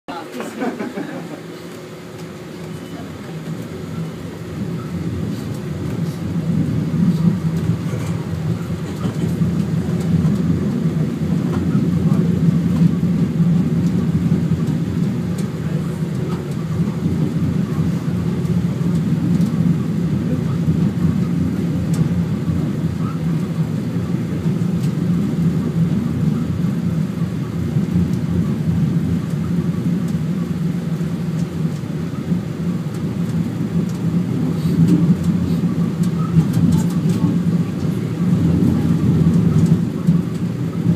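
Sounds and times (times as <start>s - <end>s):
funicular car rumbling with hum: 0.1s - 40.9s.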